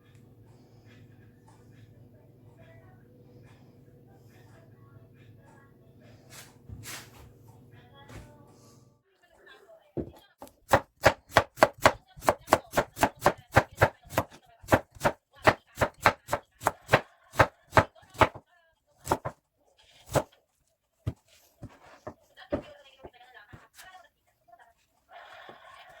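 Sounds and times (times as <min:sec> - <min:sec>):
knife chopping vegetables: 0:10.0 - 0:18.4, 0:19.0 - 0:19.4, 0:20.0 - 0:20.3.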